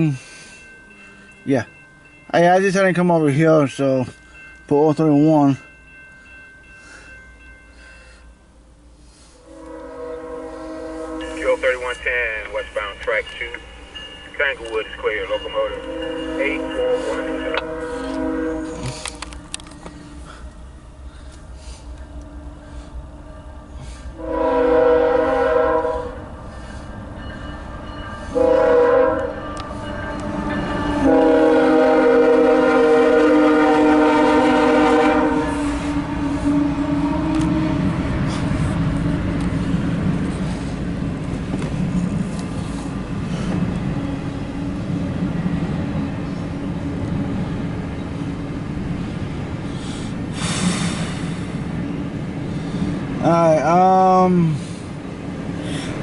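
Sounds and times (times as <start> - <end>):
freight train rumbling past: 0.0 - 56.0
locomotive air horn: 9.1 - 12.3, 15.2 - 19.4, 22.6 - 26.3, 28.3 - 39.2.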